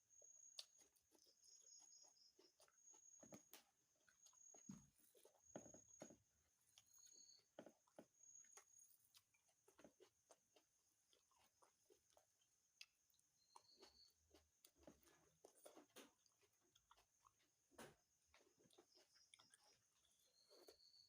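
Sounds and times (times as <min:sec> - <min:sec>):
wet chewing and mouth smacks: 0:00.2 - 0:05.7, 0:06.6 - 0:20.9.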